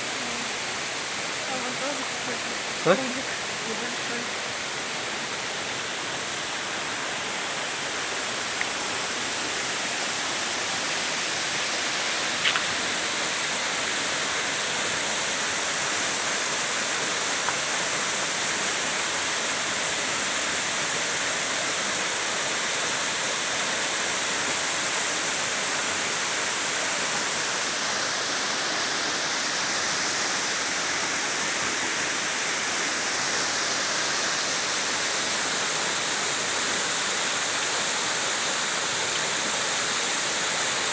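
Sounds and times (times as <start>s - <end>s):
waterfall roaring: 0.0s - 40.9s
faint clicks: 12.4s - 12.7s.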